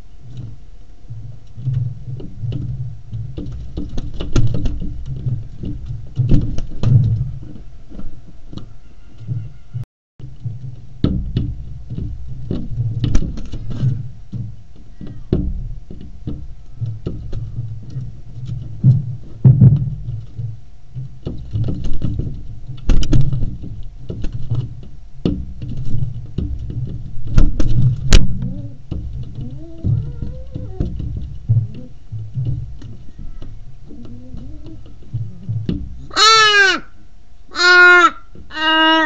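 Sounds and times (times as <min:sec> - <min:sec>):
crow pecking glass: 0:25.2 - 0:36.9, 0:37.5 - 0:39.0.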